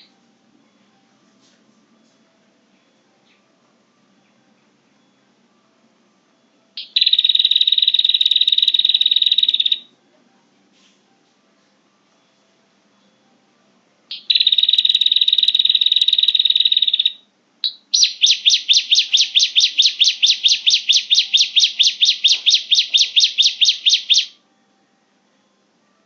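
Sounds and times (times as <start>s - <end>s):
buzzy bird trill: 6.8s - 9.9s, 14.1s - 24.4s
fast repeated bird notes: 6.8s - 9.9s, 14.1s - 24.4s
recorded bird calls: 6.8s - 9.9s, 14.1s - 24.4s.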